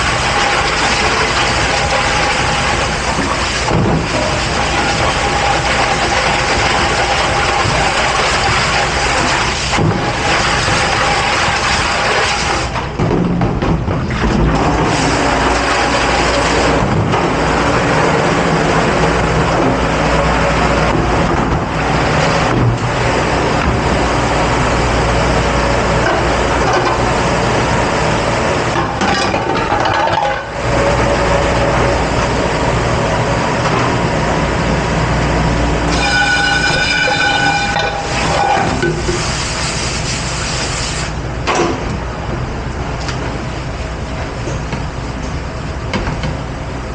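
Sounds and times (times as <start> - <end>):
dishwashing machinery rushing: 0.0 - 46.9
short pitched tone: 35.9 - 38.7.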